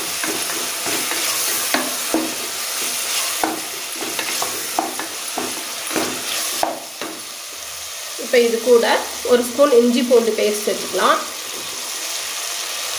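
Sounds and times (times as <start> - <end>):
spatula scraping metal pot: 0.0 - 6.6
vegetables sizzling in oil: 0.0 - 12.9.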